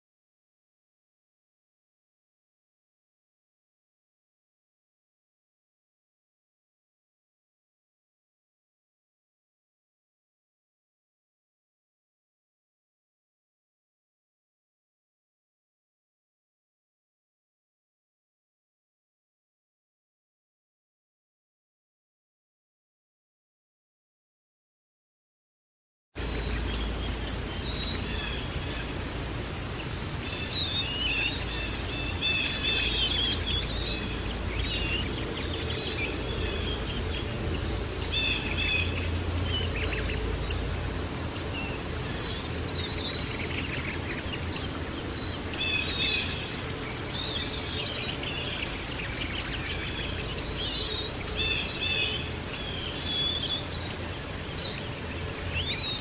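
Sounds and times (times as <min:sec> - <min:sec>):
songbirds chirping and twittering: 0:26.2 - 0:56.0.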